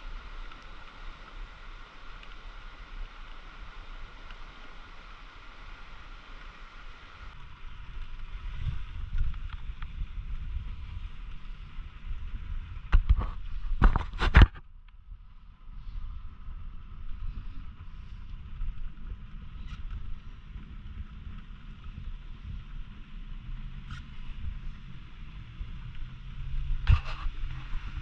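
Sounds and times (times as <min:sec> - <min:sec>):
steady rushing outdoor noise: 0:00.0 - 0:28.0
wind buffeting microphone: 0:07.2 - 0:28.0.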